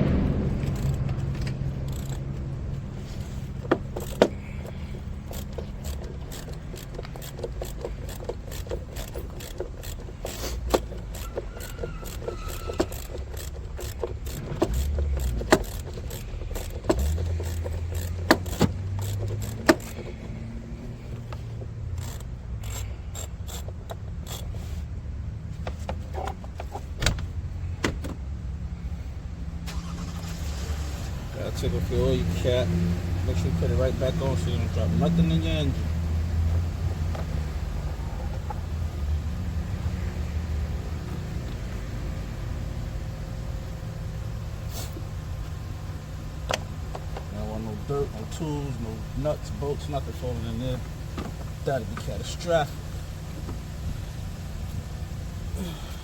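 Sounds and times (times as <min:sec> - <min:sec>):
low steady rumble: 0:00.0 - 0:56.0
hand tools clinking: 0:00.6 - 0:24.8.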